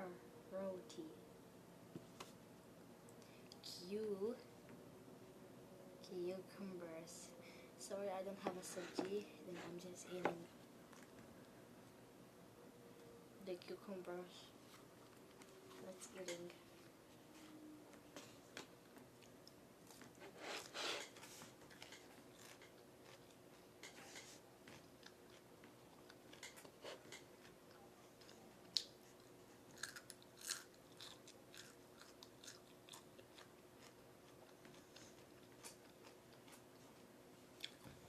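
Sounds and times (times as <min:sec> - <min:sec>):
person chewing crunchy food: 0:21.6 - 0:36.8.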